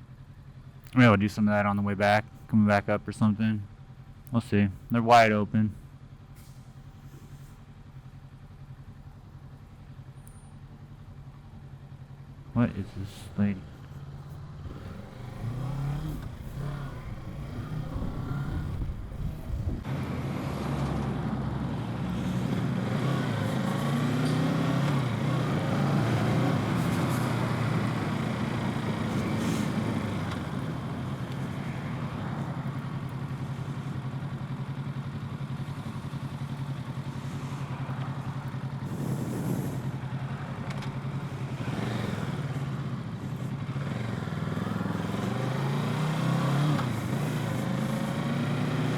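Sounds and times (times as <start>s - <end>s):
motorcycle engine running: 5.8s - 48.9s
wind noise: 16.3s - 19.9s.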